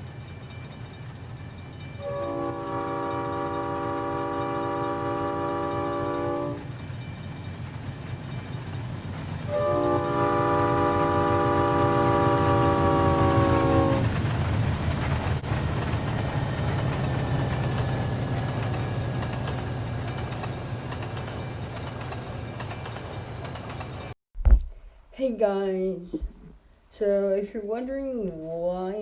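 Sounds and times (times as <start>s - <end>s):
locomotive chord horn blasts: 2.0s - 6.7s, 9.5s - 14.2s.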